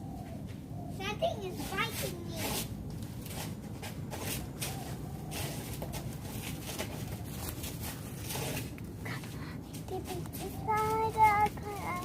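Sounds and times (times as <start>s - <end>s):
brush and branches rustling: 1.0s - 12.0s.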